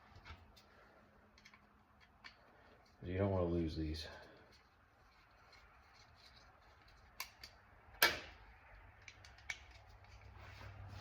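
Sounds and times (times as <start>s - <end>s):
small screws clicking and tapping: 4.5s - 10.3s.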